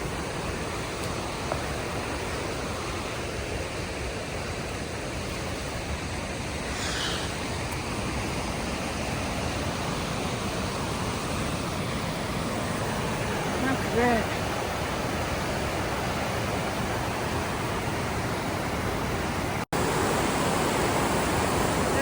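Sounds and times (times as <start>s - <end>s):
fast creek water: 0.0s - 22.0s
waterfall rushing: 0.0s - 22.0s.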